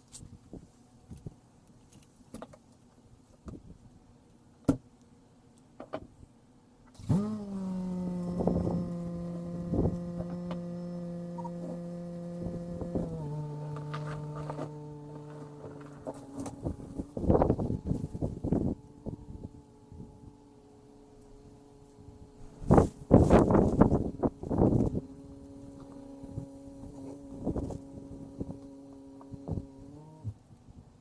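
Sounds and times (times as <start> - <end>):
motor humming: 6.9 - 30.4.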